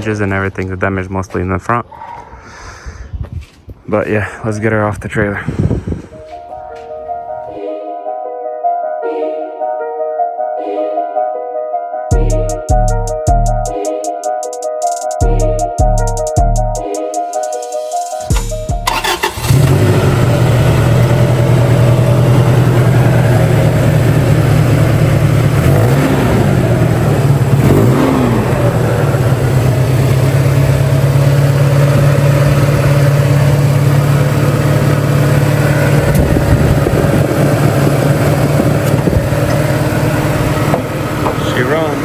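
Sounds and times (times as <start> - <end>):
pickup truck engine revving: 18.8 - 42.0.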